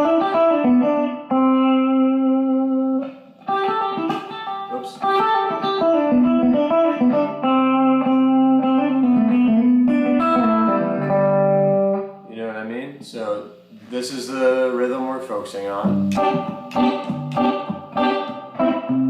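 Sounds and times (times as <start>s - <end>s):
electric guitar country lead: 0.0s - 12.3s, 15.6s - 19.0s.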